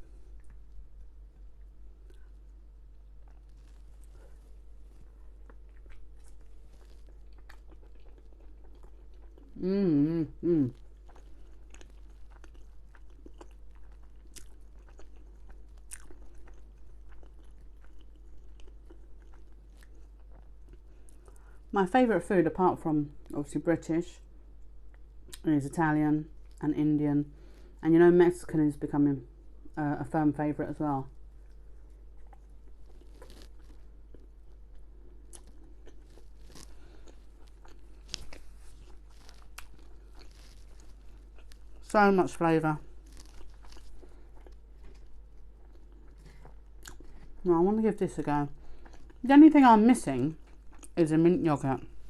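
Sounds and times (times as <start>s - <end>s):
person chewing food: 0.0s - 21.7s, 31.2s - 41.9s, 42.8s - 47.5s, 48.5s - 49.2s, 50.4s - 51.0s.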